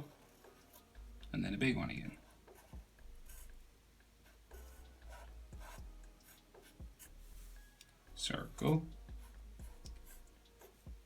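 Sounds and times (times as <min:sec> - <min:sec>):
pencil scratching on paper: 0:02.1 - 0:07.6, 0:09.1 - 0:10.9.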